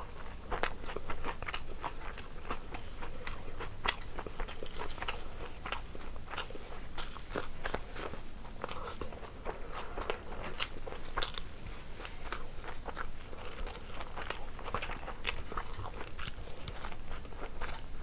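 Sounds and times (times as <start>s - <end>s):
person biting and chewing food: 3.2s - 11.6s.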